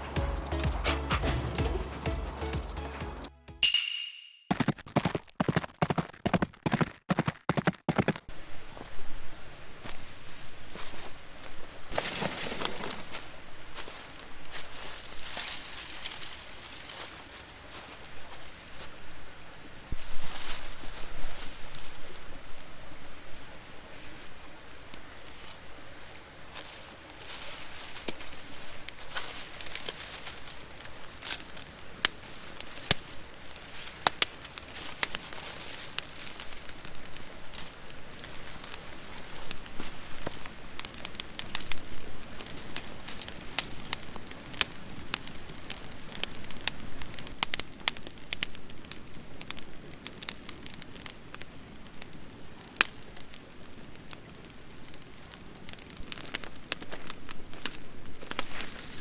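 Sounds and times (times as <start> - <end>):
campfire crackling and popping: 0.0 - 3.3, 21.7 - 59.0.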